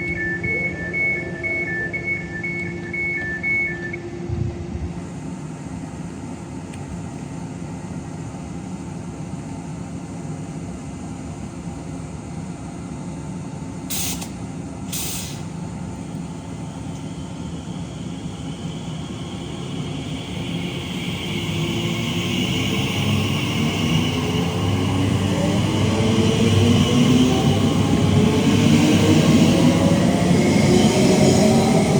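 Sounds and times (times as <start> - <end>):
electric train humming: 0.0 - 31.9
air brakes hissing: 13.9 - 15.6.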